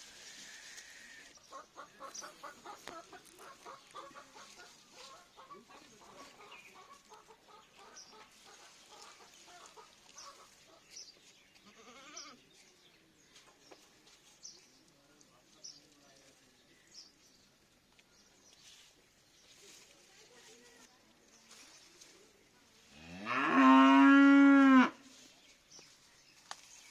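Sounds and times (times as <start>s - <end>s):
farmyard animal calls: 0.1s - 12.8s, 18.6s - 26.9s.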